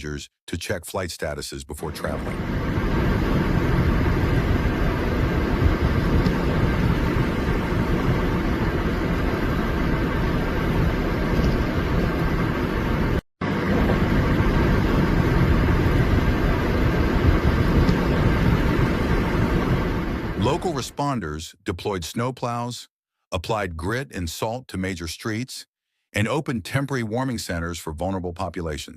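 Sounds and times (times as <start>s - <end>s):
vehicle traffic rumble: 2.0s - 20.7s.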